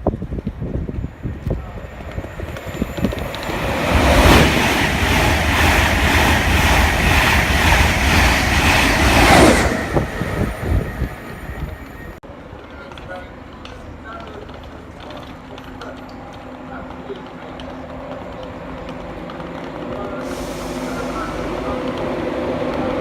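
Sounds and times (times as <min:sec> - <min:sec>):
train passing at speed: 0:00.2 - 0:12.2, 0:18.0 - 0:23.0.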